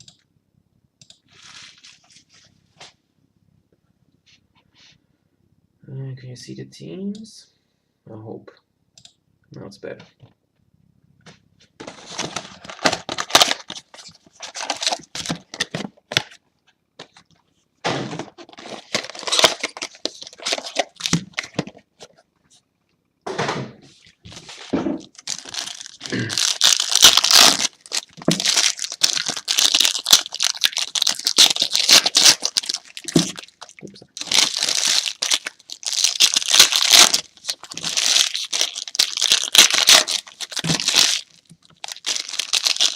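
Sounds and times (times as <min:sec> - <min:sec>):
plastic wrapping crinkling: 0:11.8 - 0:16.4, 0:18.2 - 0:22.1, 0:24.3 - 0:42.9.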